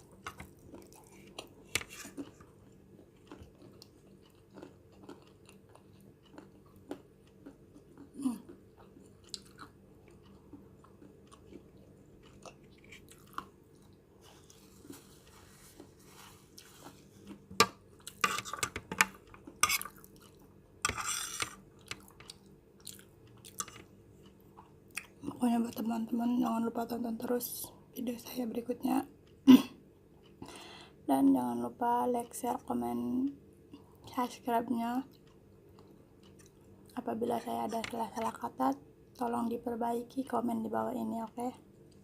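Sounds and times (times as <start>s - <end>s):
person chewing noodles: 0.0s - 20.6s, 21.3s - 25.3s, 35.1s - 37.0s.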